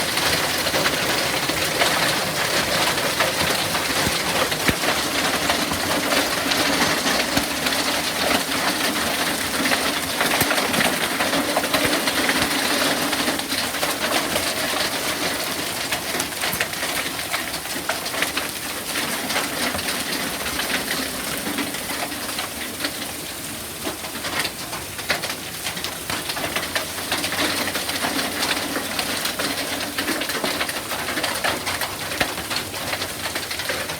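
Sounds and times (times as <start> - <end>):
hailstones pattering: 0.0 - 23.1
hail and rain falling: 0.0 - 33.9.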